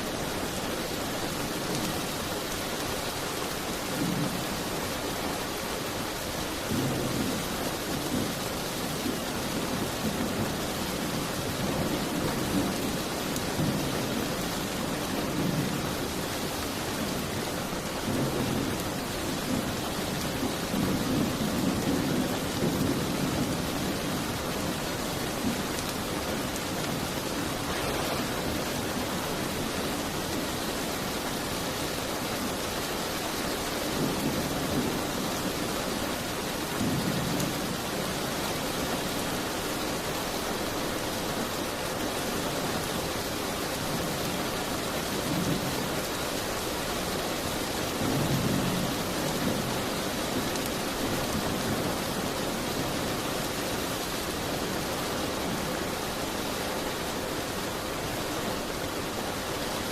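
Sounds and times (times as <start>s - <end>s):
rain hiss: 0.0s - 59.9s.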